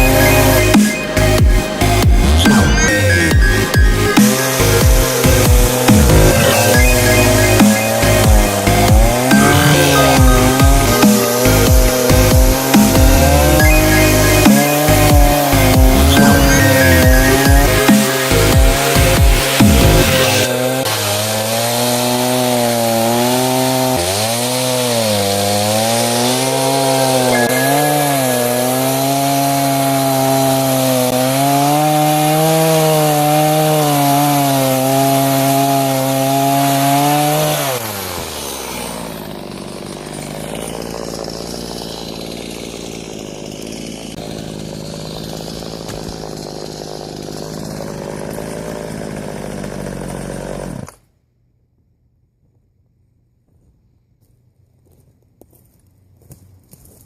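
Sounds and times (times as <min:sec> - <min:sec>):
chainsaw cutting wood: 0:00.0 - 0:51.1.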